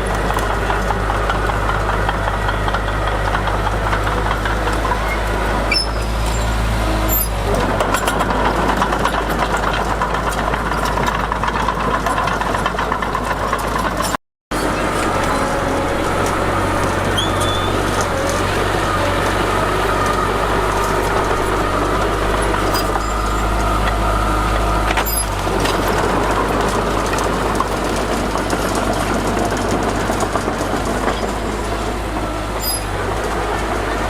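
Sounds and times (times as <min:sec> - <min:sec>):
diesel machinery engine rumble: 0:00.0 - 0:34.0
thin metallic squeals: 0:05.0 - 0:07.6, 0:14.6 - 0:23.7, 0:25.0 - 0:25.4, 0:32.6 - 0:32.9.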